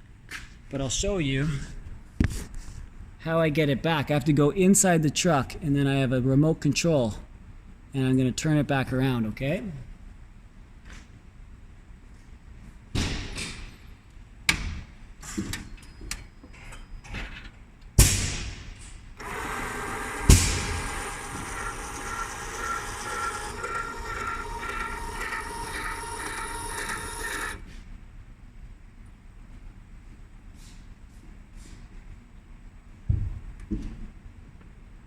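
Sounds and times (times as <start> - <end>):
electric motor whirring: 19.2 - 27.6
loud thump: 20.3 - 20.8.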